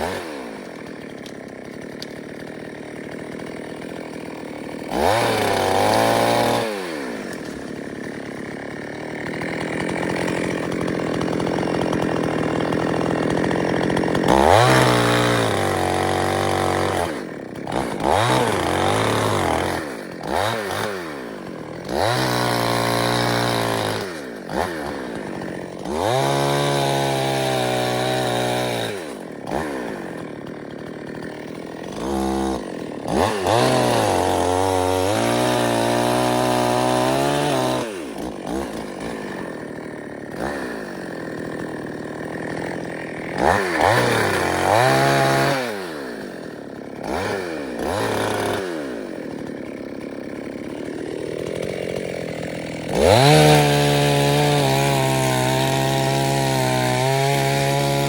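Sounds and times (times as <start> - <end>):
chainsaw engine revving: 0.0 - 58.0.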